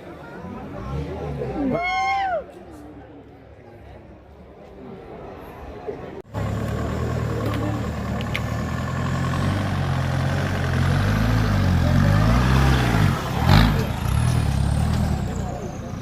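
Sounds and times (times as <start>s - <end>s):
off-road vehicle engine revving: 6.3s - 16.0s.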